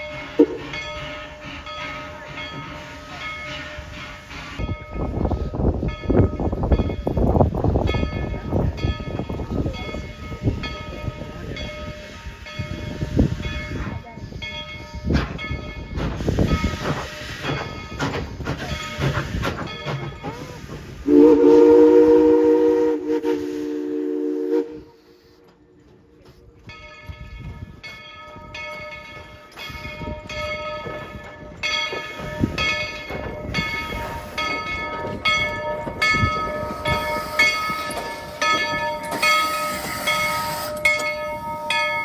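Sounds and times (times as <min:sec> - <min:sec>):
steam train clattering rumble: 0:00.0 - 0:42.0
steam whistle chord: 0:21.0 - 0:25.3.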